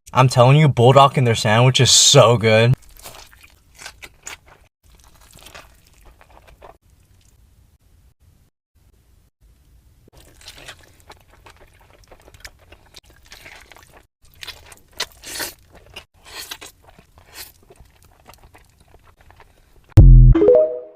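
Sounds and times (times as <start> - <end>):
crunching fried chicken: 2.8 - 7.4, 10.1 - 20.0.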